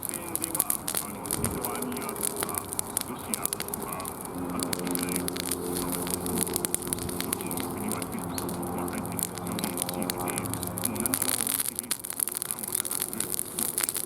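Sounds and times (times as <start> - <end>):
low hum: 0.0 - 14.0
wood fire crackling: 0.0 - 14.0.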